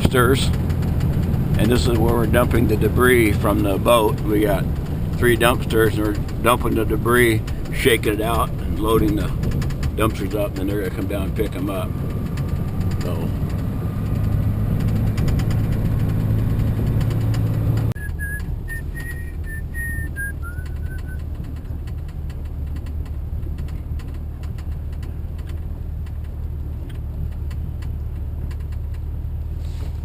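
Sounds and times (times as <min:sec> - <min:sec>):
diesel engine running: 0:00.0 - 0:30.0
whistled notes: 0:18.0 - 0:21.2.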